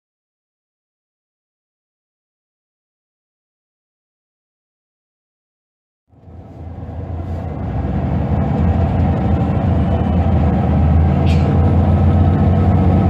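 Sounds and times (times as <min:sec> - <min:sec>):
bus diesel engine humming: 0:06.1 - 0:13.0.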